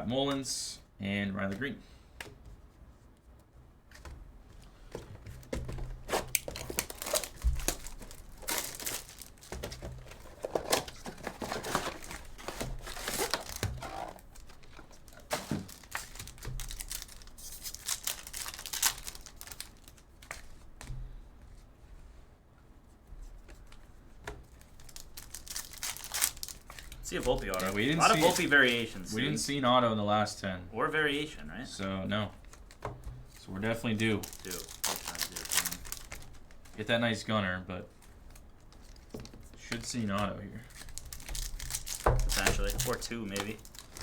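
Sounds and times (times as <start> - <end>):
foil wrappers tearing and crinkling: 6.0 - 20.5, 24.5 - 29.5, 33.4 - 36.9, 40.6 - 44.0.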